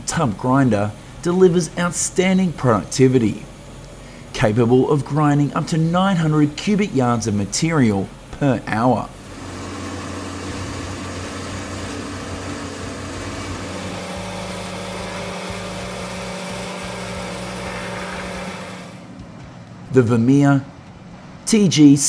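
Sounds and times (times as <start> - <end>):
tub grinder running: 9.1 - 19.1.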